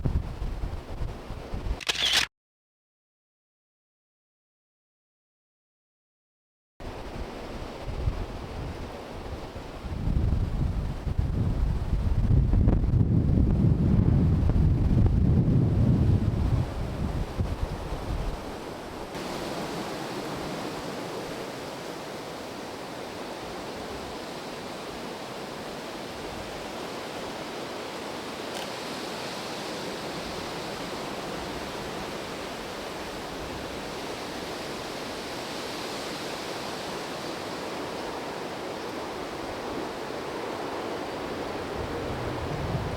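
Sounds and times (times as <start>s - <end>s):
steady rushing wind: 0.0s - 1.8s, 6.8s - 42.9s
wind buffeting microphone: 0.0s - 1.8s, 6.9s - 21.4s, 41.0s - 42.9s.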